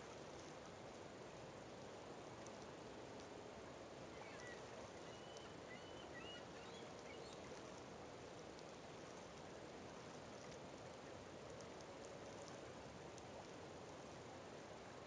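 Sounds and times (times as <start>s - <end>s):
faint outdoor hiss: 0.0s - 15.0s
faint bird chirps: 4.1s - 7.6s.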